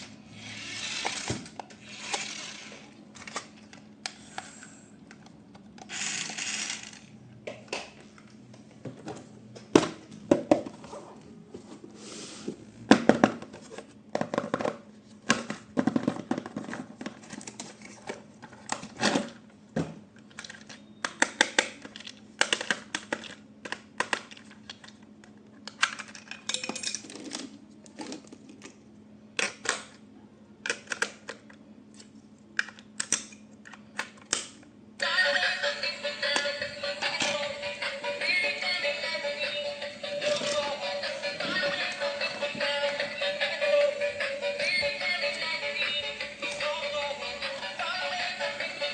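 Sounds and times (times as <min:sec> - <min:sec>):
faint steady hum: 0:00.0 - 0:48.9.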